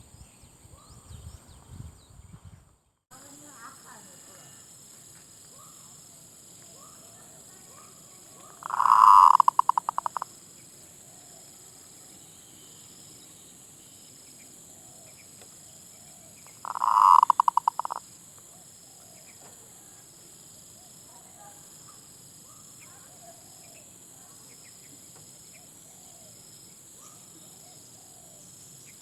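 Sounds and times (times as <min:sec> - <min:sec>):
dove cooing trill: 0:08.6 - 0:10.2, 0:16.6 - 0:18.0.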